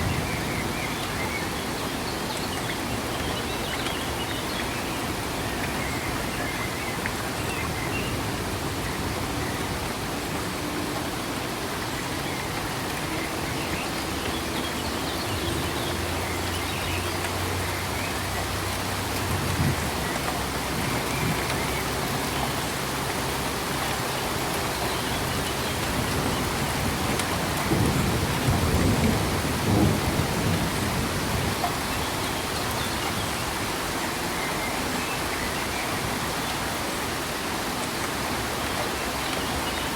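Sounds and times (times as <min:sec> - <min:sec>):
steady rain falling: 0:00.0 - 0:39.9
thunder rumbling: 0:26.2 - 0:31.6.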